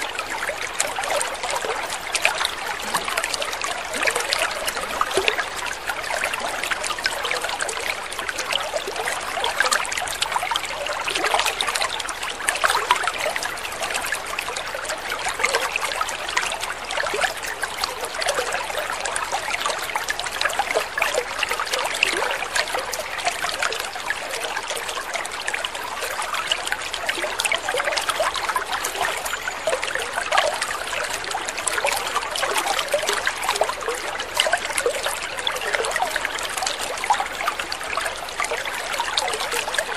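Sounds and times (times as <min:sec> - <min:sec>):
small drips and splashes: 0:00.0 - 0:39.9
water trickling: 0:00.0 - 0:39.9.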